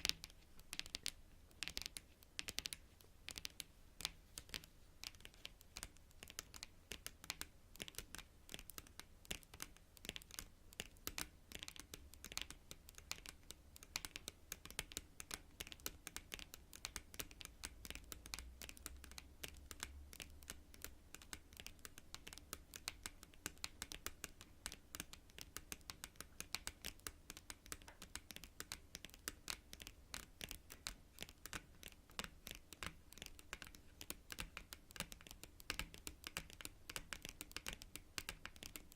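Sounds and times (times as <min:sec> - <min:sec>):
fingernails tapping on cards: 0:00.0 - 0:38.9.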